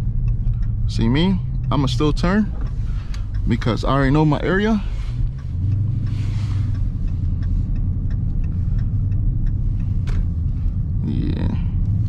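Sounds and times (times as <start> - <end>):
car engine rumble: 0.0 - 12.0
light ticks: 0.0 - 12.0
road noise: 0.0 - 12.0.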